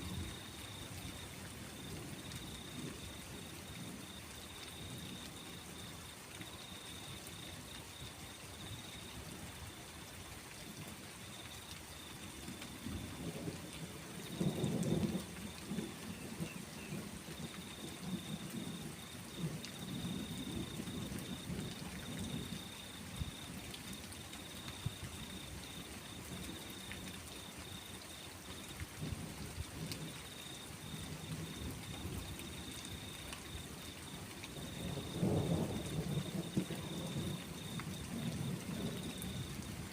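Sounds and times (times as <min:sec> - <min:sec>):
steady rain: 0:00.0 - 0:39.9
rolling thunder: 0:34.6 - 0:39.9.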